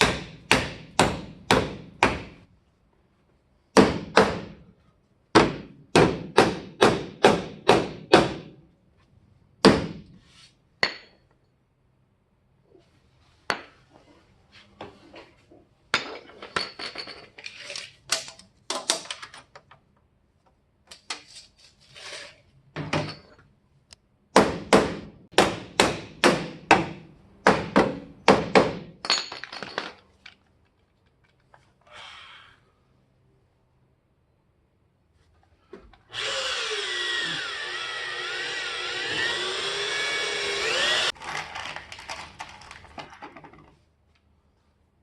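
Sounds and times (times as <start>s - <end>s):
hammer strikes: 0.0s - 2.4s, 3.7s - 4.6s, 5.3s - 8.6s, 9.6s - 10.1s, 24.3s - 29.0s.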